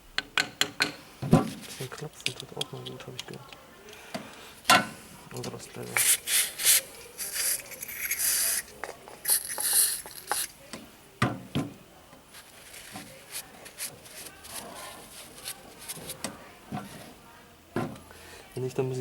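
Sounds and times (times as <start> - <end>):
hand scraping rusty metal: 5.8 - 10.6.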